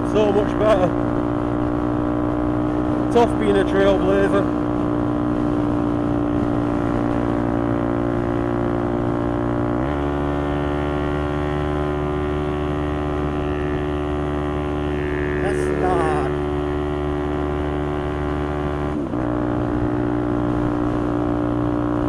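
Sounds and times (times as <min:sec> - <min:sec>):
motorcycle engine running: 0:00.0 - 0:22.0
wind noise: 0:04.4 - 0:09.3.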